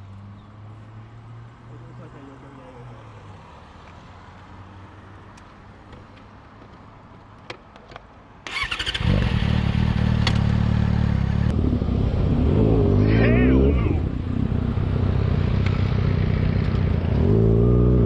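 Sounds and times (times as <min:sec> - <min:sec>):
motorcycle engine running: 0:09.0 - 0:11.5.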